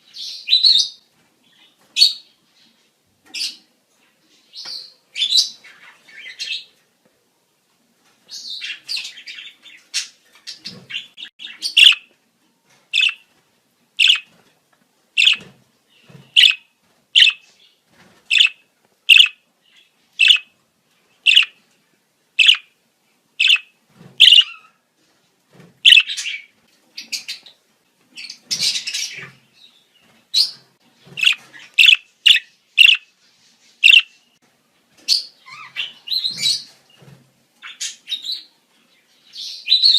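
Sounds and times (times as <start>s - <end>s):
budgerigars chattering and warbling: 10.6s - 12.0s, 13.0s - 13.2s, 14.0s - 14.3s, 15.2s - 15.4s, 16.4s - 16.6s, 17.2s - 17.4s, 18.3s - 19.4s, 20.2s - 20.5s, 21.3s - 21.6s, 22.4s - 22.6s, 23.4s - 23.6s, 24.2s - 24.6s, 25.9s - 26.4s, 31.2s - 33.0s, 33.8s - 34.1s.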